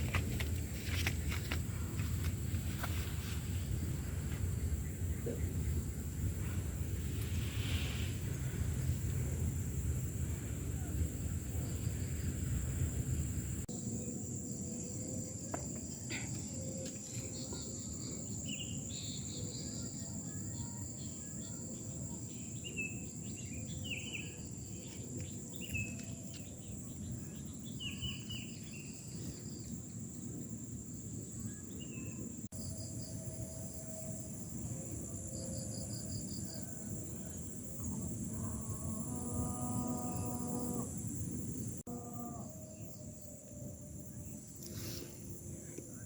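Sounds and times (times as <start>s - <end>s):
low outdoor rumble: 0.0s - 16.4s
insects droning: 0.0s - 46.0s.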